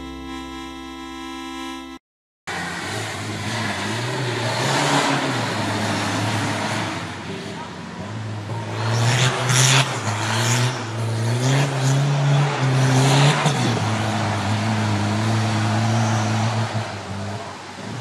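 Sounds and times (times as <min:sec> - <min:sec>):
off-road engine revving: 0:02.5 - 0:18.0.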